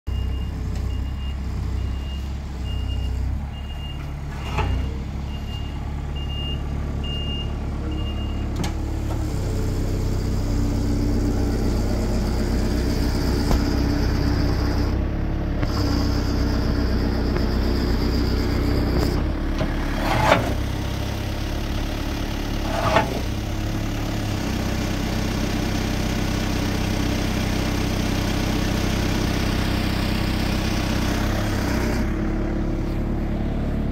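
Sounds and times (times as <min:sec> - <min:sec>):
excavator engine running: 0:00.1 - 0:33.9.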